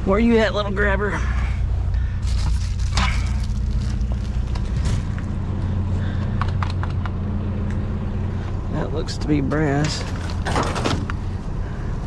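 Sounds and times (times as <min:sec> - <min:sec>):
engine idling: 0:00.0 - 0:12.0
sharp clicks and rattles: 0:06.2 - 0:07.8.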